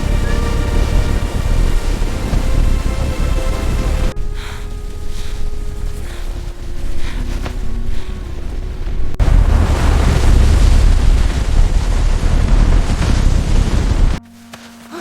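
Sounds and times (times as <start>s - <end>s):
faint music: 0.0s - 11.4s
loud rushing noise with deep rumble: 0.0s - 14.2s.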